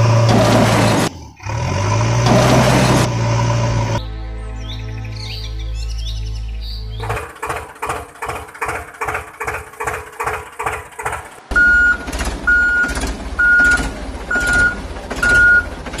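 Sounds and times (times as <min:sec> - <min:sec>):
heavy vehicle engine running: 0:00.0 - 0:04.0, 0:06.9 - 0:16.0
reversing alarm beeping: 0:11.5 - 0:15.7.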